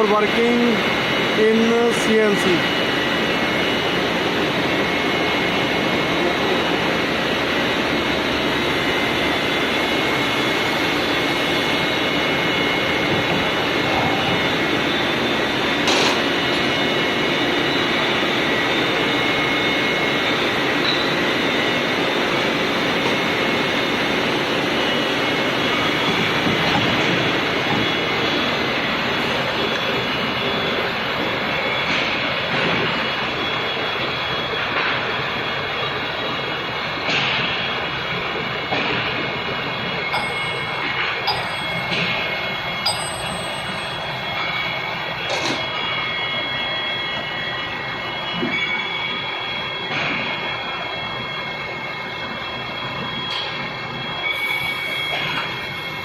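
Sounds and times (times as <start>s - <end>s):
high whining tones: 39.8s - 56.0s.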